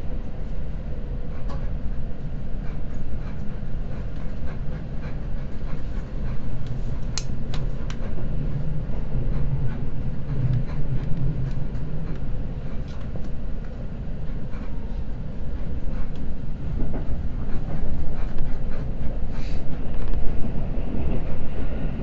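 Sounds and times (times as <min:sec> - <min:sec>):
train low rumble: 0:00.0 - 0:22.0.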